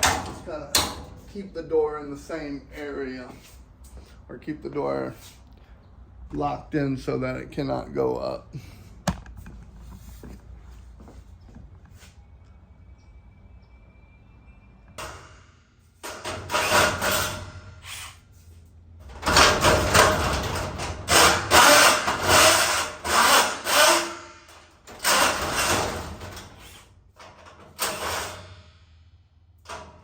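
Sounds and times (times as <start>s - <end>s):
power drill short bursts: 21.2s - 25.7s.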